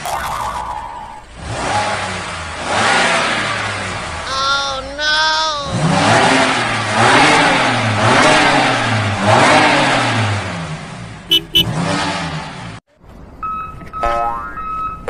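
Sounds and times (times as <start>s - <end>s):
car engine revving: 0.0s - 4.3s, 5.6s - 12.8s
short sharp engine blips: 11.3s - 11.9s.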